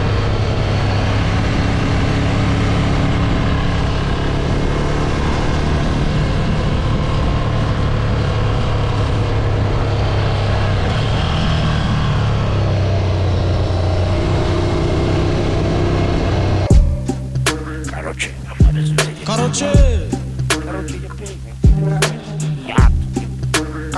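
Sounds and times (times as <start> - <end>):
motorcycle engine running: 16.7 - 20.6.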